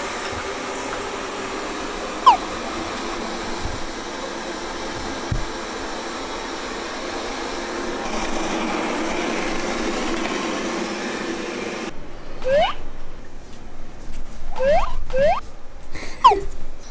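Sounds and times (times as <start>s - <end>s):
robot vacuum whirring: 0.0s - 12.8s.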